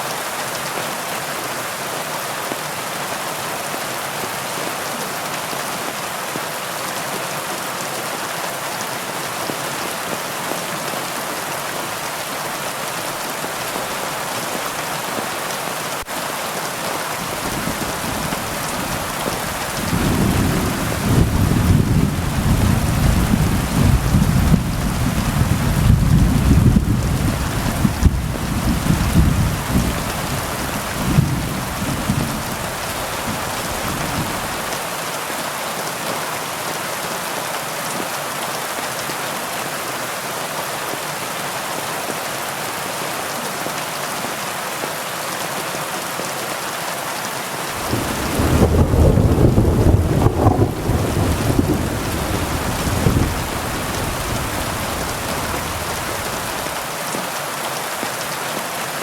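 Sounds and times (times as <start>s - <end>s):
heavy rain falling: 0.0s - 59.0s
rolling thunder: 17.3s - 34.6s, 47.8s - 56.7s.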